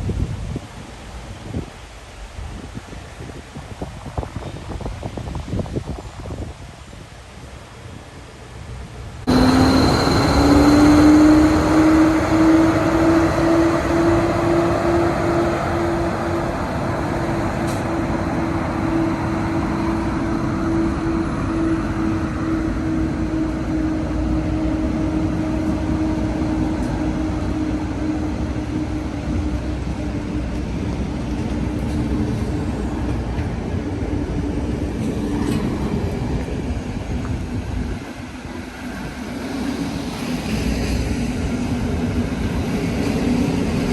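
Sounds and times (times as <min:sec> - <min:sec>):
train mechanical hum: 0:00.1 - 0:43.9
train wheels rumbling: 0:09.2 - 0:43.9.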